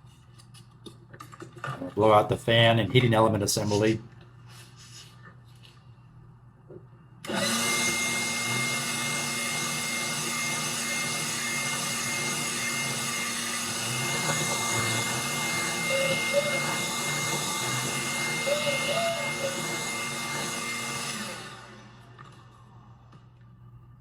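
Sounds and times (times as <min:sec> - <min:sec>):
leaf blower running: 0:07.2 - 0:22.5
leaf blower whine: 0:07.2 - 0:22.7.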